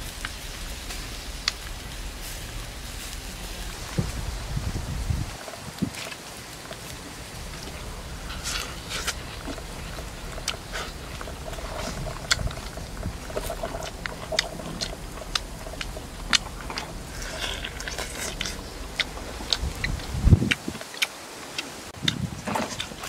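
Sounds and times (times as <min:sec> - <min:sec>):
person chewing and biting: 0:07.6 - 0:21.1.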